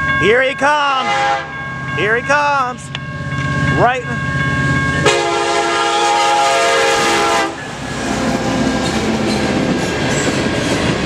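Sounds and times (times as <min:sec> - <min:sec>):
train air horn chord: 0:01.0 - 0:01.6, 0:05.0 - 0:07.6
train wheels clattering on rails: 0:07.6 - 0:11.0.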